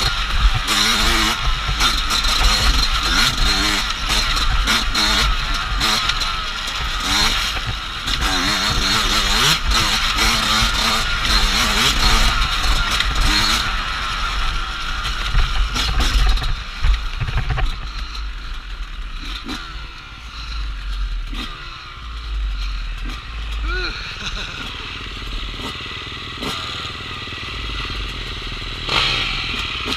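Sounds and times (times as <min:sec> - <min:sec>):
dirt bike engine revving: 0:00.0 - 0:29.9.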